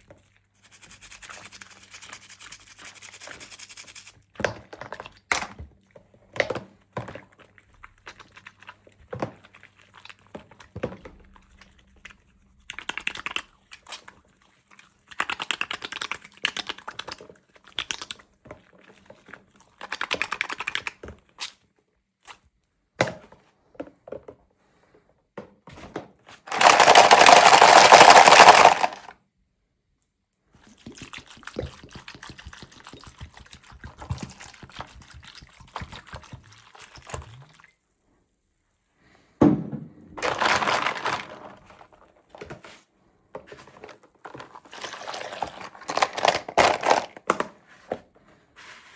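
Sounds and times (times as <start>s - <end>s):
packaging rustling and crinkling: 26.4s - 29.1s, 40.2s - 42.4s, 43.7s - 47.5s
plastic toy pieces clicking: 26.5s - 29.1s, 45.0s - 47.2s.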